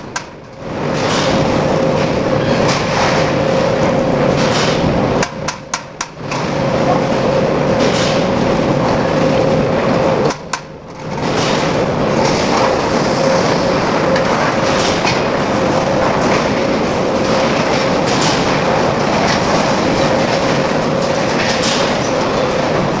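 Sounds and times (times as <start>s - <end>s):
industrial machinery hum: 0.0s - 23.0s.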